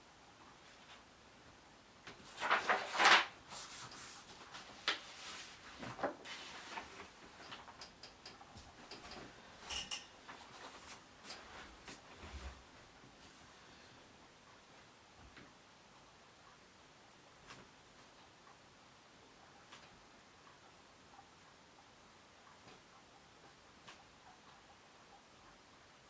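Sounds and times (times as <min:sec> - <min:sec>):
handling rustling and knocks: 0:02.1 - 0:13.4
light clicks and taps: 0:07.3 - 0:12.0.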